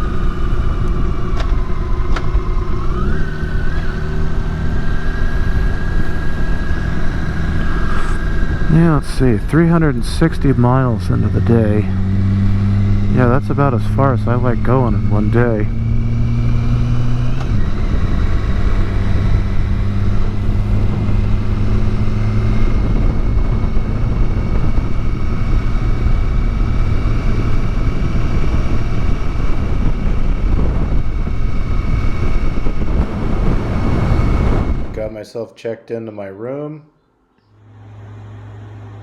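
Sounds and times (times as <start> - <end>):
motorcycle engine running: 0.0 - 35.0
wind rush on microphone: 0.0 - 35.1.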